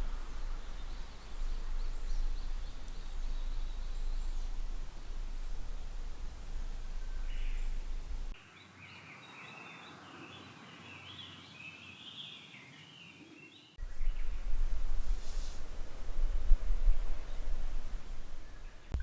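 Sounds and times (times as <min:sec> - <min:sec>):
wind rumble on microphone: 0:00.0 - 0:08.4, 0:13.8 - 0:19.0
small birds chirping: 0:00.0 - 0:19.0.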